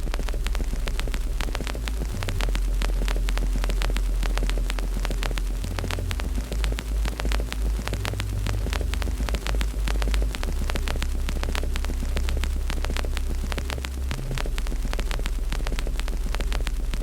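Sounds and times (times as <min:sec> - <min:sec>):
loud low drone: 0:00.0 - 0:17.0
wood fire crackling: 0:00.0 - 0:17.0.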